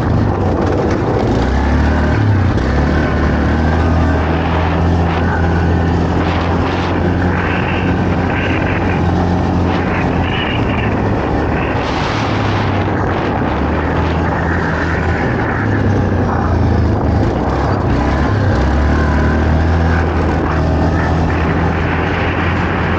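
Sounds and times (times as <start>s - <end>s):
quad bike engine running: 0.0s - 22.9s
steady rushing noise: 0.0s - 22.9s.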